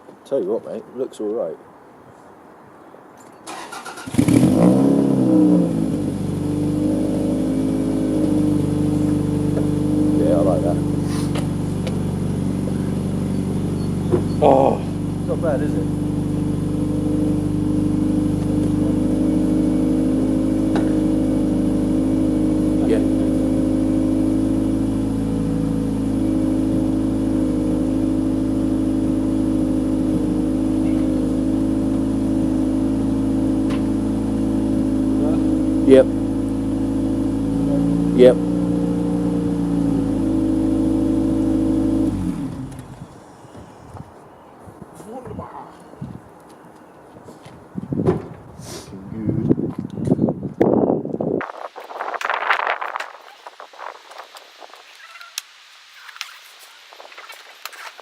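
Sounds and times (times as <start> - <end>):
car engine starting and idling: 3.4 - 43.8.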